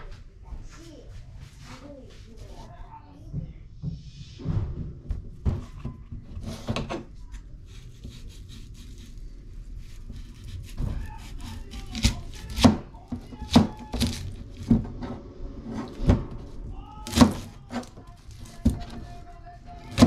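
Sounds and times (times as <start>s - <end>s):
knife chopping on wooden board: 10.1s - 14.9s, 17.0s - 19.1s, 19.8s - 20.0s.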